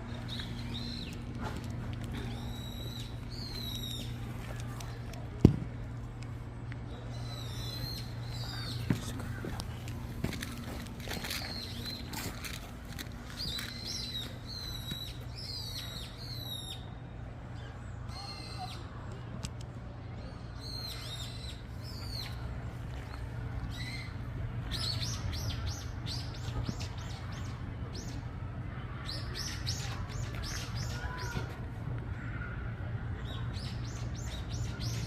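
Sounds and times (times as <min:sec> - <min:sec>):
small birds chirping: 0:00.0 - 0:05.2, 0:06.8 - 0:17.0
steady low hum: 0:00.0 - 0:35.0.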